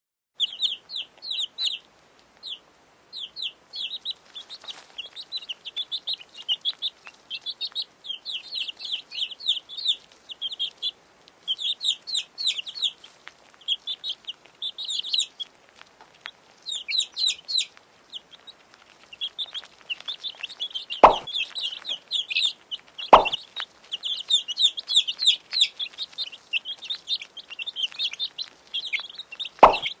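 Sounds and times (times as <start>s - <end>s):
chicks peeping: 0.4s - 30.0s
sharp knocks: 21.0s - 21.3s, 23.2s - 23.4s, 29.6s - 29.9s.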